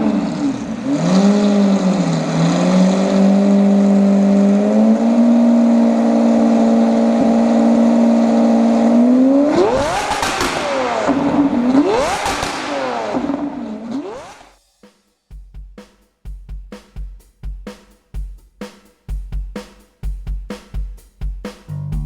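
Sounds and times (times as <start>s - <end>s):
car engine revving: 0.0s - 14.5s.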